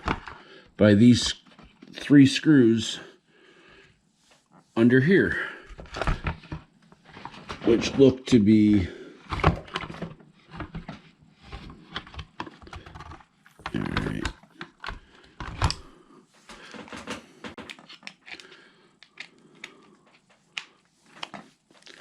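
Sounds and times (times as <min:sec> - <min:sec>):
plastic parts clattering: 0:00.0 - 0:00.4, 0:05.6 - 0:15.9, 0:16.5 - 0:22.0.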